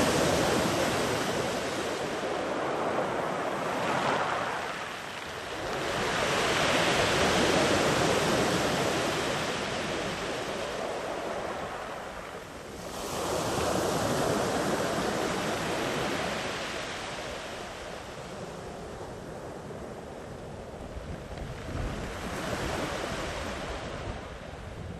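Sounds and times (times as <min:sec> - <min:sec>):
sea waves breaking on shore: 0:00.0 - 0:19.3.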